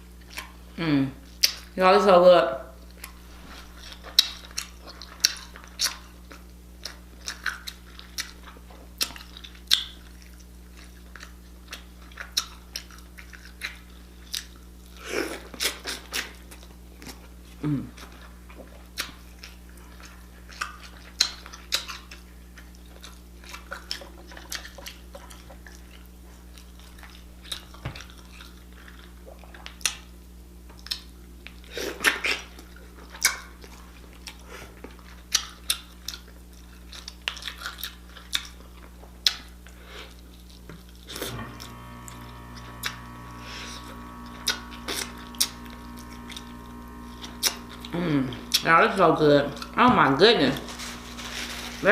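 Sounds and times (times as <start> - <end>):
mouth chewing and smacking: 0.2 - 0.6, 1.2 - 1.8, 2.9 - 41.1
steady multi-tone hum: 39.7 - 51.9.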